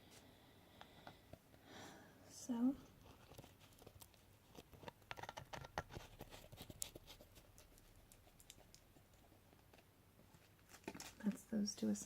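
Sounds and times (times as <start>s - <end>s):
plastic containers clicking and tapping: 4.6s - 6.2s.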